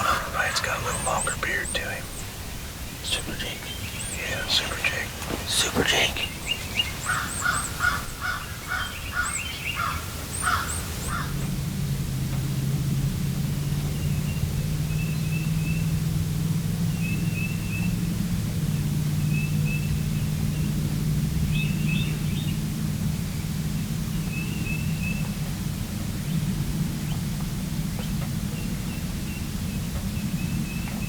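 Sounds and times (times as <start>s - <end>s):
songbird chirping: 0.0s - 11.5s
steady low hum: 0.0s - 19.2s.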